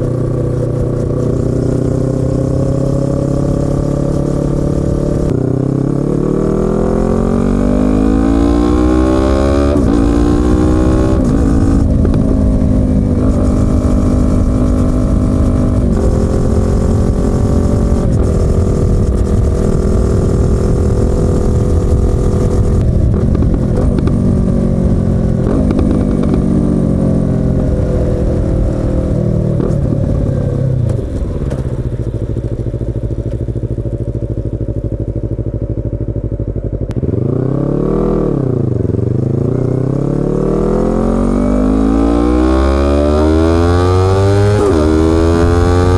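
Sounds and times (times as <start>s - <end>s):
motorcycle engine revving through gears: 0.0s - 45.9s
motorcycle engine idling: 16.2s - 37.4s.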